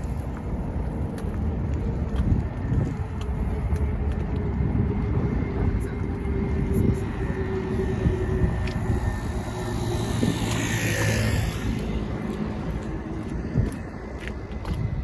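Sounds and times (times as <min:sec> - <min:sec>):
traffic engine hum: 0:00.0 - 0:15.0
vehicle passing: 0:01.6 - 0:15.0.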